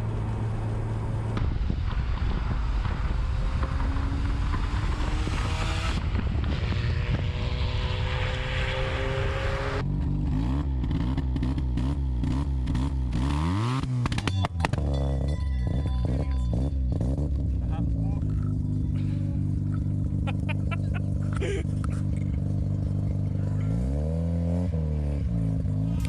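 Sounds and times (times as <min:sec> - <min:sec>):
rotary engine revving: 0:03.3 - 0:14.2.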